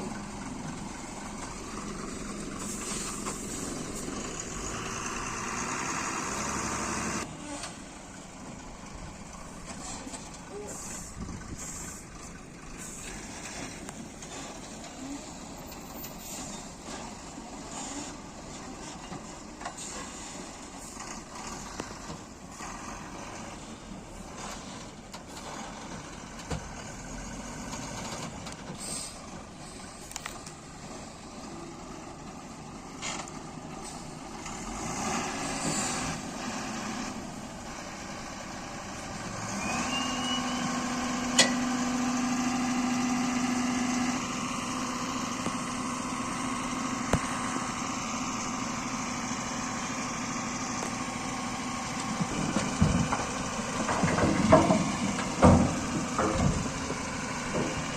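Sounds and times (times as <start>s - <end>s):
diesel engines running: 0.0s - 57.9s
steady engine hum: 0.0s - 57.9s
short knocks and clanks: 52.0s - 57.9s.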